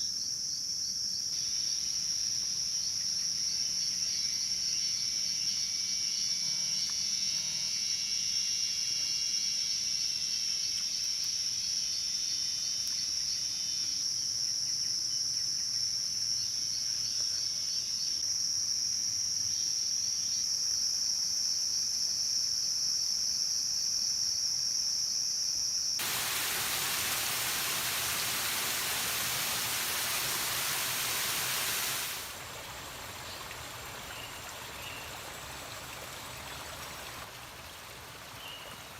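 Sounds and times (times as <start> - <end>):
insect chorus buzzing: 0.0 - 35.5
falling water hiss: 26.0 - 38.9.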